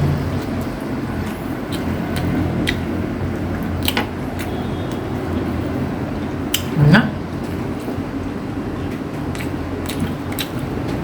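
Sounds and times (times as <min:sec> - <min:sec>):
people chewing: 0:00.0 - 0:11.0
wet mouth clicks and smacks: 0:09.3 - 0:10.8.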